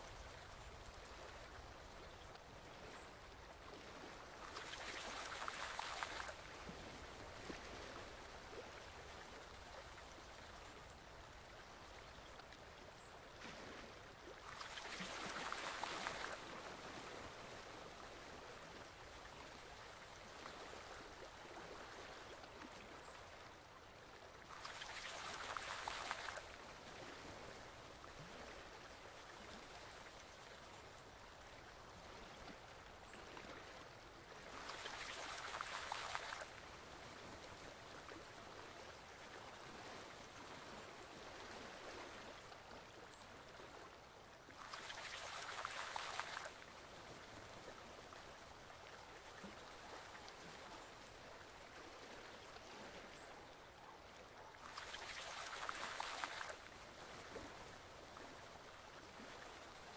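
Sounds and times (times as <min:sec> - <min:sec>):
stream running water: 0:00.0 - 0:59.9.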